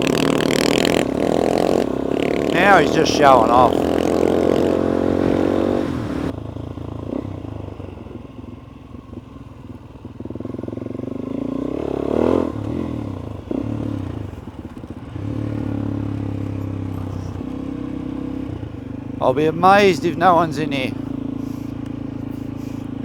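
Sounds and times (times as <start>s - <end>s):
dirt bike engine: 0.0s - 6.3s, 13.5s - 23.0s.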